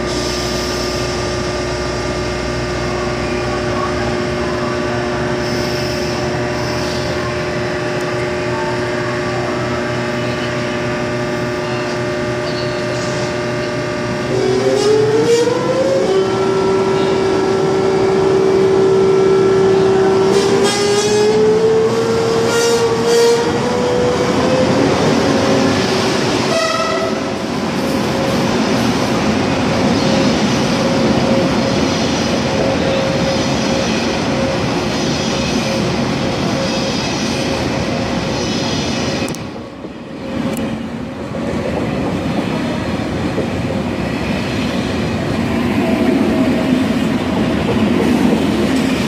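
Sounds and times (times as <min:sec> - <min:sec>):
train drive whine: 0:00.0 - 0:49.0
train horn toot: 0:14.2 - 0:24.0, 0:26.5 - 0:27.4.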